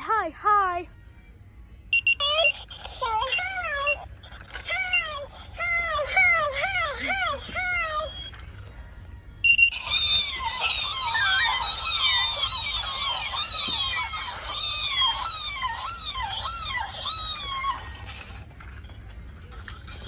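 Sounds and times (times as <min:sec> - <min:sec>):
electronic bird chirping: 0:09.5 - 0:17.8.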